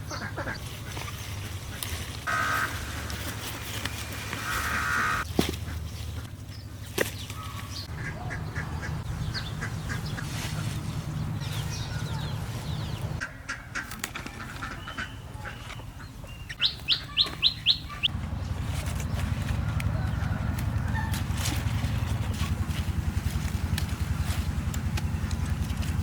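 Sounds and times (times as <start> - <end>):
steady low rumble: 0.0 - 13.4, 18.1 - 26.0
birds calling: 0.0 - 26.0.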